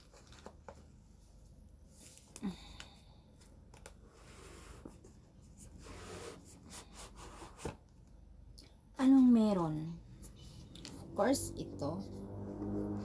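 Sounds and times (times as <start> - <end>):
soft rubbing of cardboard: 4.0 - 7.8.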